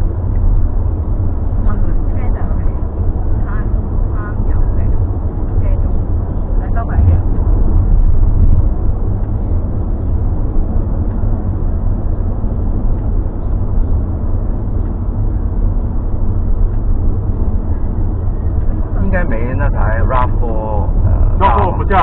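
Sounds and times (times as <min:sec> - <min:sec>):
road rumble inside car cabin: 0:00.0 - 0:22.0.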